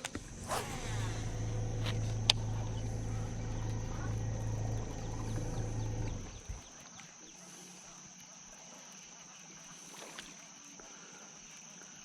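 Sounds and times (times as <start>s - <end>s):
thin high whine: 0.0s - 6.8s
electric trolling motor humming: 0.0s - 6.9s.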